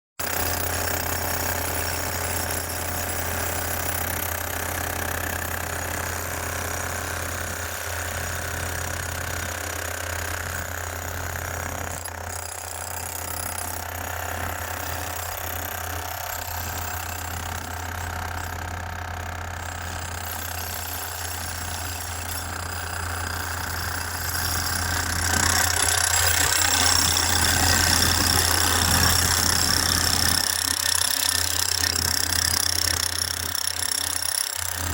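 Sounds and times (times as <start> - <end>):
road-repair machinery running: 13.8 - 34.9.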